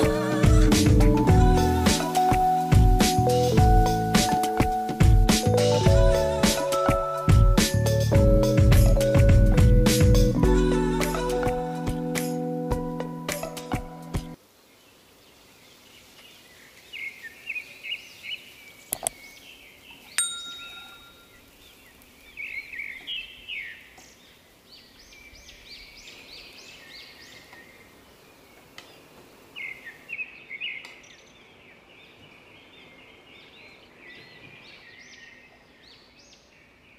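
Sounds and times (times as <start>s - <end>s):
birds chirping: 15.4s - 36.9s.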